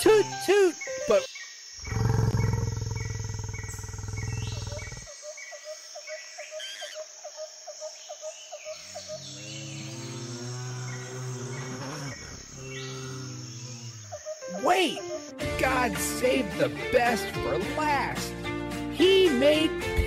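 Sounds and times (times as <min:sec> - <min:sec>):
low rough animal roar: 0:01.8 - 0:05.1, 0:08.8 - 0:14.2.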